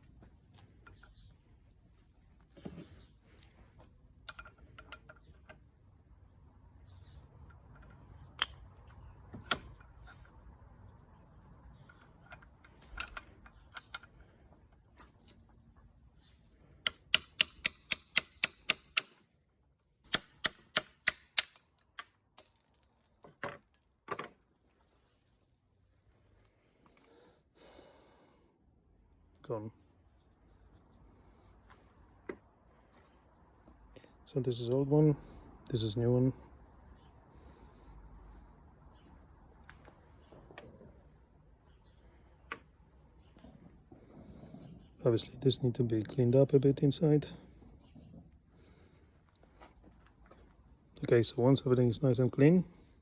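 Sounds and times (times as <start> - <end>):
hammer tapping on metal: 16.8 - 19.2.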